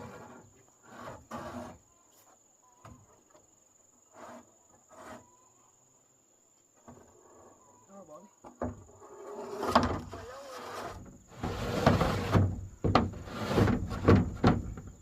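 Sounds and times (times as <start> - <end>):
knocks and scrapes of materials: 0.0 - 5.4, 8.5 - 15.0
crickets chirping: 0.0 - 15.0.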